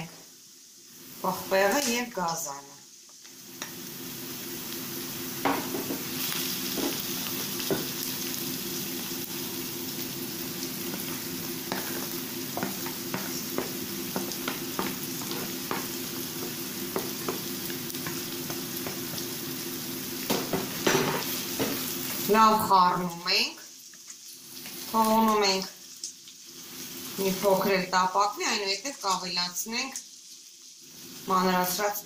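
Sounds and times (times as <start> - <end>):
vegetables sizzling in a frying pan: 0.0 - 32.0
utensils tapping against pan: 6.7 - 7.0, 11.7 - 19.2.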